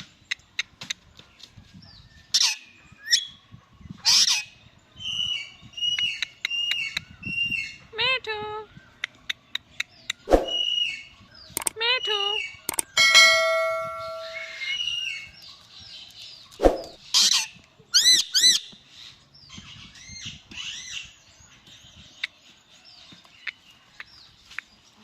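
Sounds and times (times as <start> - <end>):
clicks: 11.6 - 11.8, 12.7 - 13.0.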